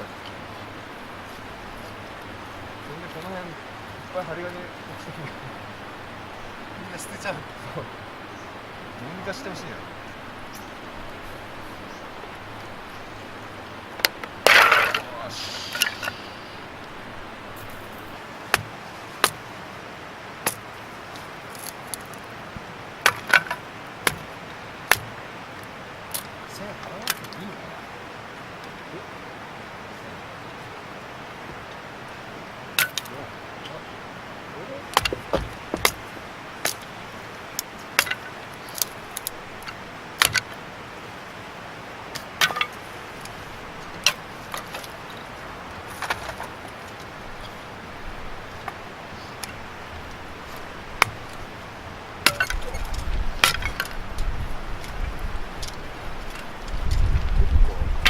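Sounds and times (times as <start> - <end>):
firewood clacking: 0.0 - 19.5, 20.4 - 27.5, 31.4 - 33.9, 34.8 - 41.2, 42.1 - 58.0
firewood knocking and clinking: 13.9 - 16.2, 17.5 - 19.4, 23.0 - 24.3, 24.9 - 25.2, 32.7 - 33.1, 34.9 - 37.0, 37.6 - 40.6, 42.1 - 47.6, 49.4 - 51.5, 52.2 - 57.3.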